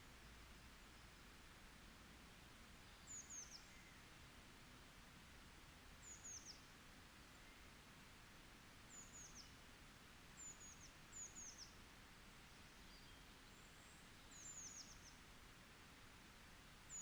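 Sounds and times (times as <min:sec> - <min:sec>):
forest ambience hiss: 0:00.0 - 0:17.0
faint songbird calls: 0:02.8 - 0:04.0, 0:12.7 - 0:15.2.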